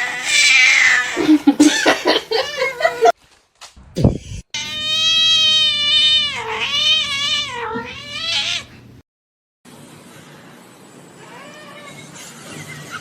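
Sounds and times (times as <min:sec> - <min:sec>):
cat meowing: 0:04.6 - 0:08.7.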